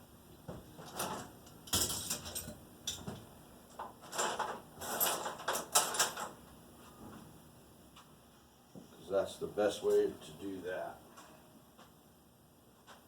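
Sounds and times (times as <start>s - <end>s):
tools clattering on a workbench: 0.8s - 6.4s.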